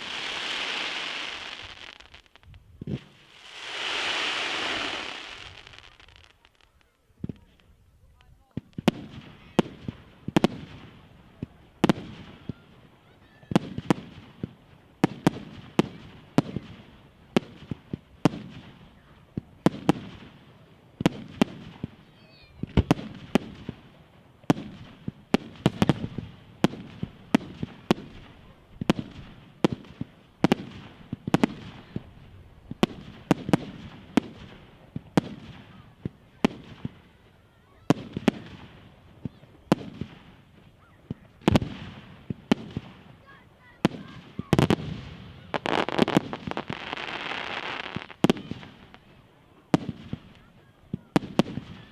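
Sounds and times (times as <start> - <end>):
loud firework bangs: 0.0 - 7.4, 24.5 - 37.0, 37.8 - 49.0.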